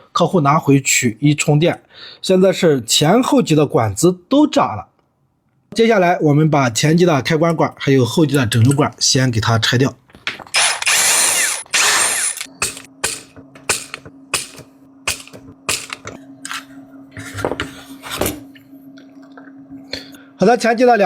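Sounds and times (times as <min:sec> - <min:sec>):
steady low hum: 0:10.6 - 0:21.0
tools clicking and tapping: 0:12.3 - 0:16.2.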